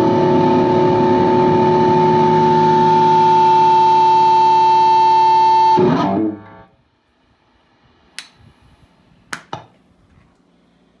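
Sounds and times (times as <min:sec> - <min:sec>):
distorted electric guitar note: 0:00.0 - 0:06.7
sharp clicks: 0:08.2 - 0:08.4.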